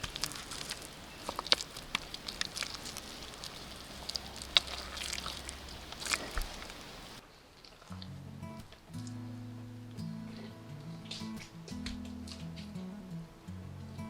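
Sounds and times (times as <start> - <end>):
wet clay squelching by hand: 0.0 - 7.2.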